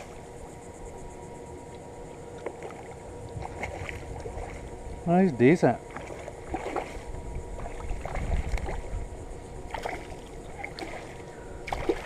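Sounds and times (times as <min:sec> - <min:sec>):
water sound: 0:00.0 - 0:12.0.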